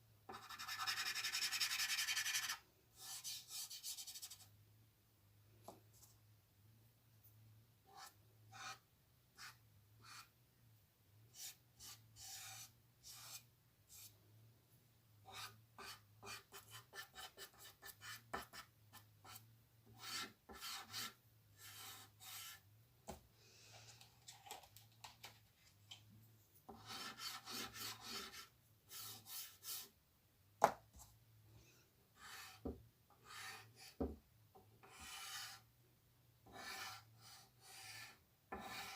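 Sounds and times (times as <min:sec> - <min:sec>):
drawing tool scratching paper: 0:00.3 - 0:04.4, 0:07.9 - 0:08.8, 0:09.4 - 0:10.3, 0:11.4 - 0:14.1, 0:15.2 - 0:19.4, 0:20.0 - 0:22.6, 0:26.7 - 0:29.9, 0:32.2 - 0:34.0, 0:34.8 - 0:35.6, 0:36.4 - 0:38.9.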